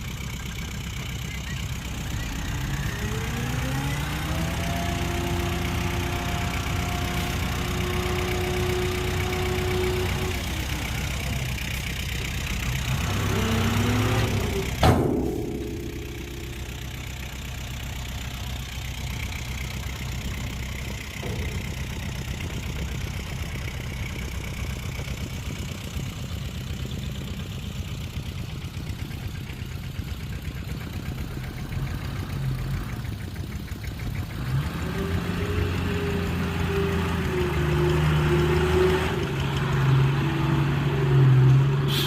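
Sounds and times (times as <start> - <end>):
heavy diesel engine running: 0.0 - 42.0.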